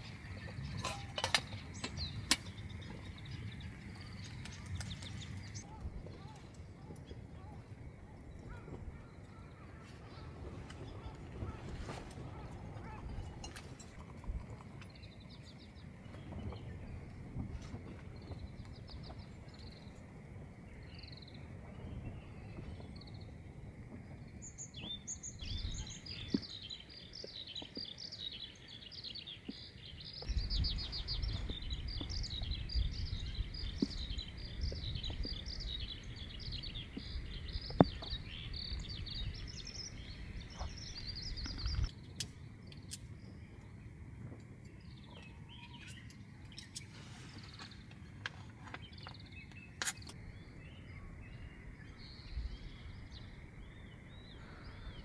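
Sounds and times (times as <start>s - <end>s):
small birds chirping: 0.0s - 7.6s, 24.3s - 43.9s.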